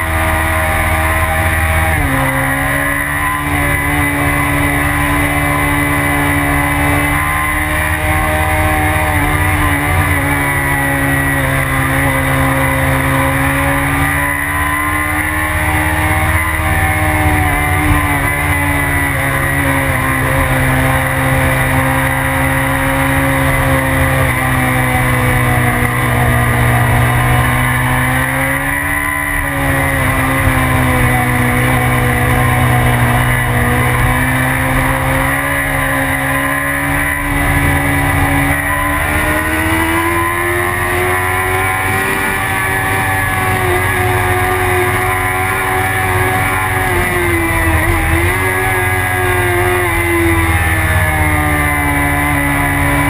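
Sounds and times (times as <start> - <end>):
motorcycle engine at high revs: 0.0 - 53.0.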